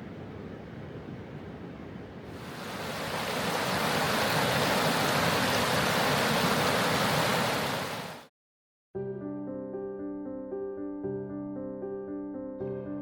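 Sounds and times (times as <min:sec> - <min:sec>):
river water rushing over stones: 0:02.4 - 0:08.3
piano music: 0:09.0 - 0:13.0.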